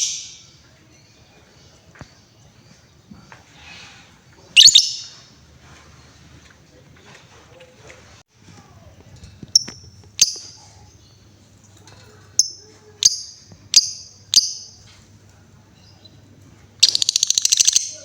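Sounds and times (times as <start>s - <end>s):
bird rattling trill: 4.6s - 5.2s, 16.8s - 18.0s
bird chirping: 4.6s - 5.3s, 9.5s - 11.4s, 12.4s - 14.9s, 15.7s - 18.0s.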